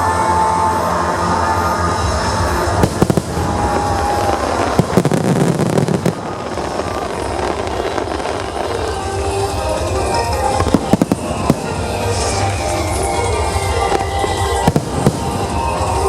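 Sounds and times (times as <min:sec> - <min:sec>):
fireworks bangs and crackling: 0:00.0 - 0:16.0
music: 0:00.0 - 0:16.0.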